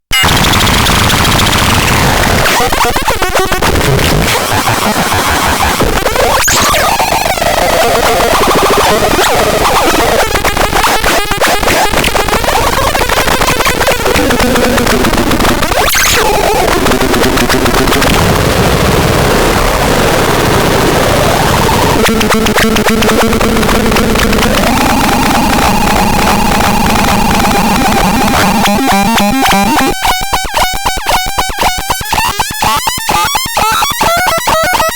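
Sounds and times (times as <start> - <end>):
harsh distorted electronic noise: 0.1 - 34.9
rapid stuttering clicks: 0.2 - 34.9
electronic pitch sweeps: 6.1 - 12.7, 21.7 - 34.9.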